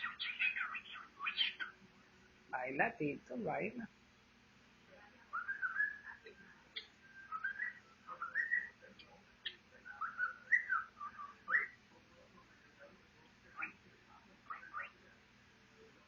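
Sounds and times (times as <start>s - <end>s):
cockatiel whistling: 5.3s - 6.1s, 7.2s - 8.7s, 9.9s - 11.8s.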